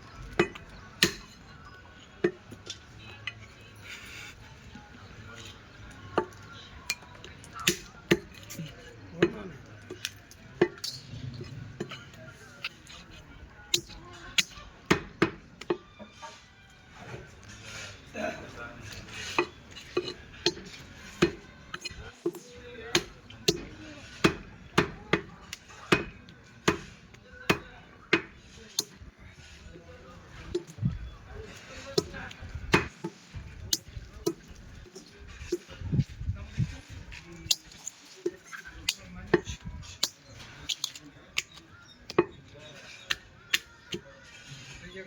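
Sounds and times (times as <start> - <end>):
blade chopping meat and bone: 7.6 - 10.9, 12.6 - 15.8, 18.9 - 29.0, 32.8 - 35.7, 37.5 - 44.2.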